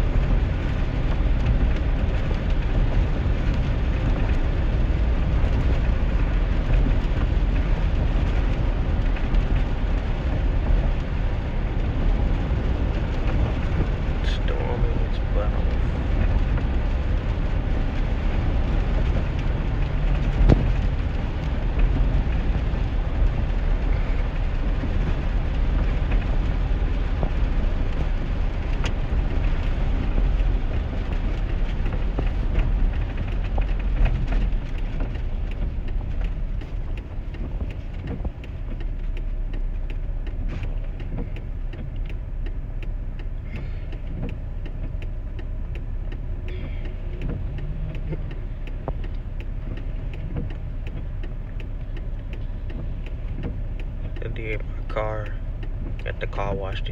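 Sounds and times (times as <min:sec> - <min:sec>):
cabin road noise rumble: 0:00.0 - 0:56.9
tyres hissing on wet road: 0:00.0 - 0:56.9
faint ticks: 0:27.9 - 0:56.4.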